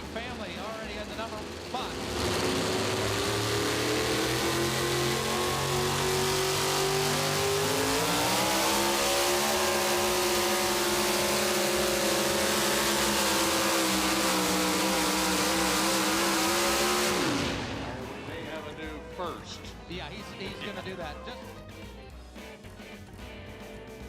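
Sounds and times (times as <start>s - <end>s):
pulling truck engine at full throttle: 0.0s - 24.0s.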